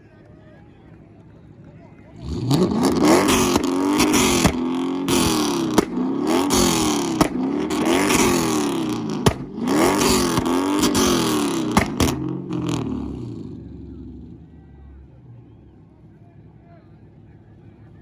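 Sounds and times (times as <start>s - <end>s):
car engine revving: 2.1s - 17.8s
exhaust pops and bangs: 2.3s - 12.9s.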